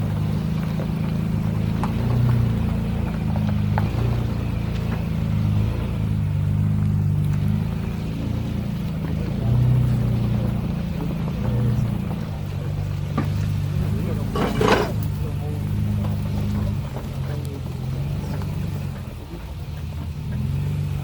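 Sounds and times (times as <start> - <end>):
pickup engine revving: 0.0 - 21.0.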